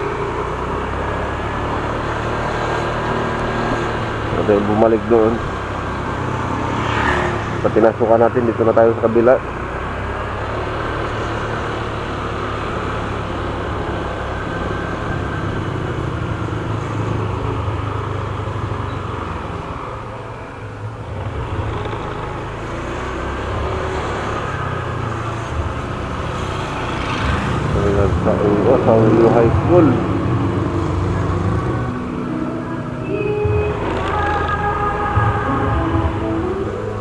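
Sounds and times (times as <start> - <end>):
motorcycle engine drone: 0.0 - 37.0
road noise: 0.0 - 37.0.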